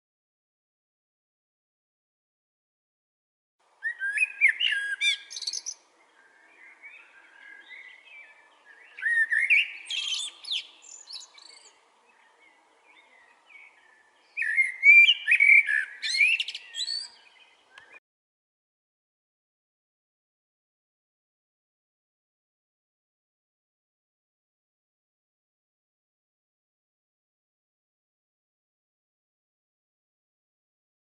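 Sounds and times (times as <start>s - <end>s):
quiet bird twittering: 3.8s - 18.0s
songbird warbling: 12.9s - 18.0s.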